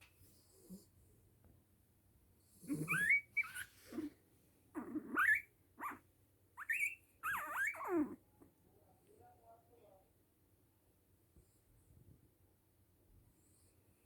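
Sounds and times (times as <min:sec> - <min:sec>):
dog whining: 0:02.6 - 0:06.0, 0:06.6 - 0:08.2.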